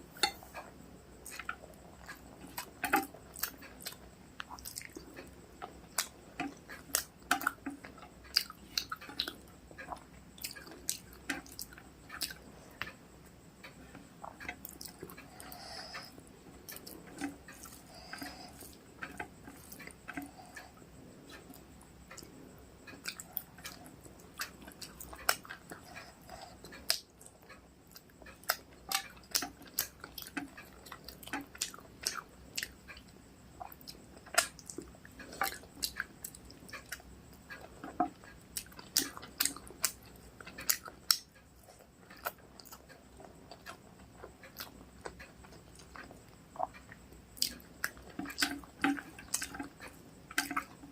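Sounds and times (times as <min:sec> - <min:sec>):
chewing with wet mouth smacks: 0:01.2 - 0:13.0, 0:14.2 - 0:50.8.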